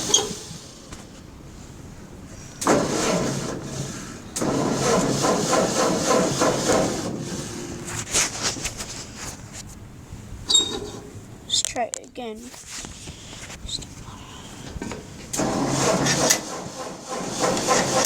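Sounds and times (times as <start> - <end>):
tractor engine cranking: 0.0 - 1.1, 2.6 - 8.3, 10.5 - 11.2, 14.8 - 18.0.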